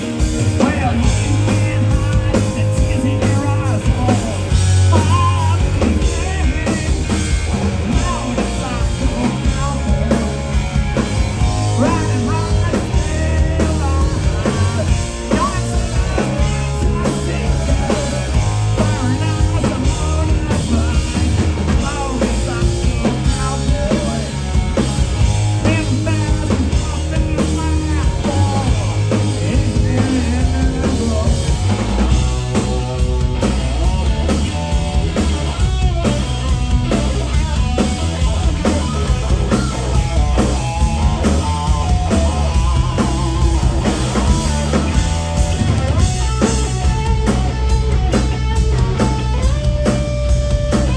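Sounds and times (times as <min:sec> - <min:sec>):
bass guitar: 0:00.0 - 0:50.9
drum kit: 0:00.0 - 0:50.9
electric guitars: 0:00.0 - 0:50.9
person singing: 0:00.6 - 0:07.2, 0:11.5 - 0:24.6, 0:25.6 - 0:31.8.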